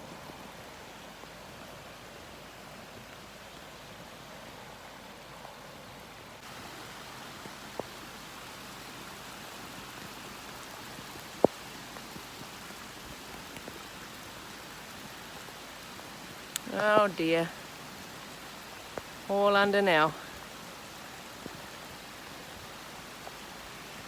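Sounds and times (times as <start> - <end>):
heavy rain pouring: 6.3 - 24.0.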